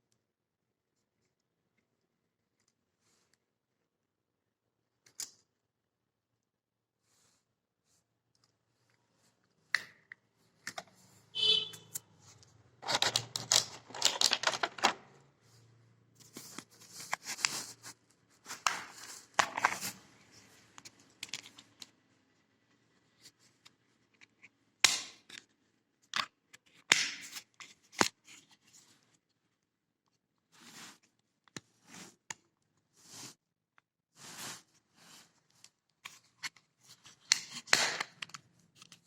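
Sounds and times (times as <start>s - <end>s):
packaging rustling and scraping: 12.2s - 15.2s, 16.2s - 21.7s.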